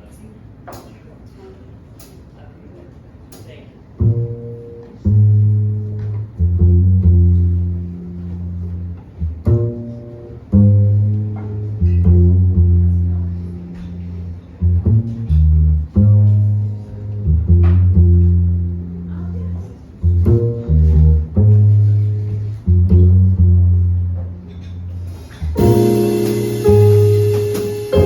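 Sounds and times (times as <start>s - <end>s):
plucked jazz bass: 4.0s - 28.0s
drum or cymbal hits: 25.6s - 28.0s.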